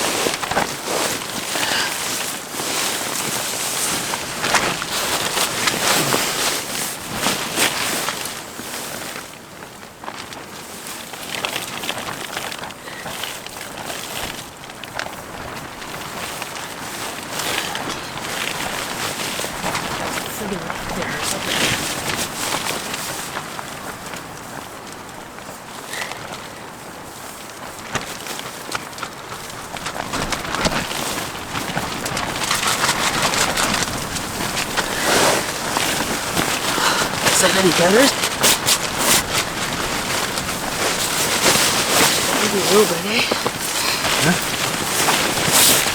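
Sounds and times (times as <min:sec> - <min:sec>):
tarp rustling in wind: 0:00.0 - 0:45.9.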